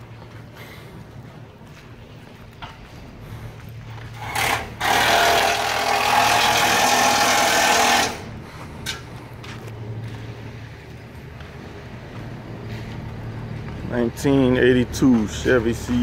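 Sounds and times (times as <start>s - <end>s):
low engine hum: 8.2s - 16.0s.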